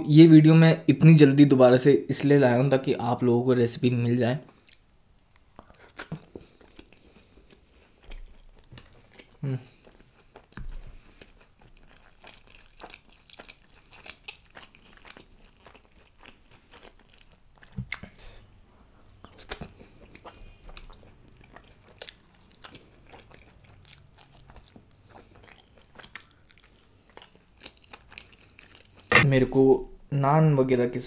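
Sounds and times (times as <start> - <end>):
chewing with mouth clicks: 4.4 - 29.3.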